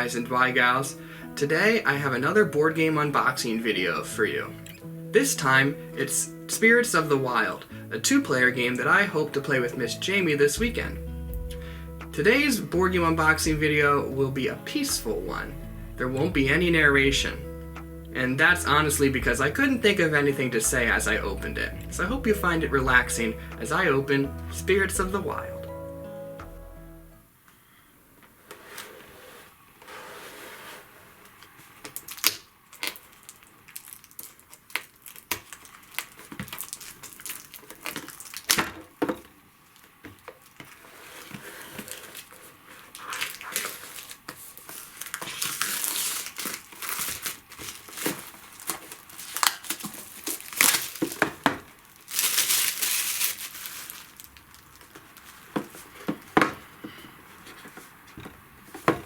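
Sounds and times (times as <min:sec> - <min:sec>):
packaging tearing and crinkling: 0:31.3 - 0:39.0, 0:39.7 - 0:56.3
rustling: 0:39.7 - 0:59.0.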